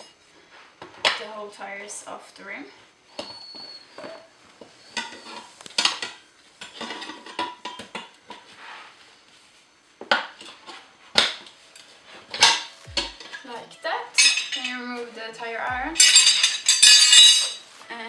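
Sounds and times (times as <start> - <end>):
tire irons clinking on rim: 15.9 - 17.7.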